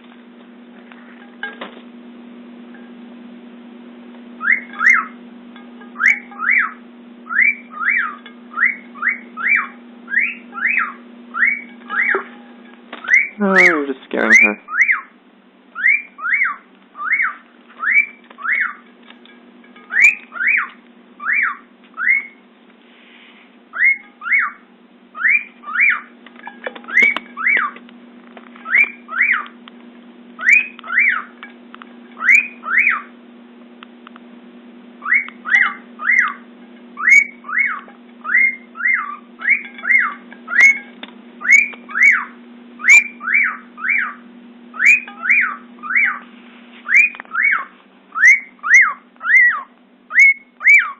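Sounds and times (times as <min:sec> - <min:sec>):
low steady hum: 0:00.0 - 0:50.9
cockatiel whistling song: 0:04.4 - 0:05.2, 0:06.0 - 0:12.3, 0:13.0 - 0:13.4, 0:14.3 - 0:18.8, 0:19.9 - 0:22.4, 0:23.7 - 0:26.1, 0:26.8 - 0:27.8, 0:28.6 - 0:29.5, 0:30.4 - 0:31.3, 0:32.2 - 0:33.1, 0:35.0 - 0:36.4, 0:37.0 - 0:40.8, 0:41.4 - 0:50.9.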